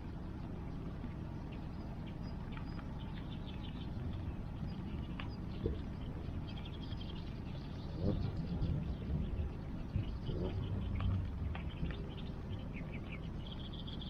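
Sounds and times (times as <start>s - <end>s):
burning wood crackle: 0.0s - 14.0s
rain: 0.0s - 14.0s
high chirping calls: 0.7s - 14.0s.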